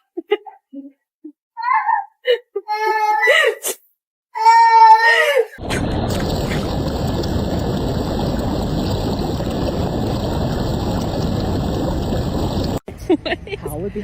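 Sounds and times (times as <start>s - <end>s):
steady rushing noise: 5.6s - 12.8s.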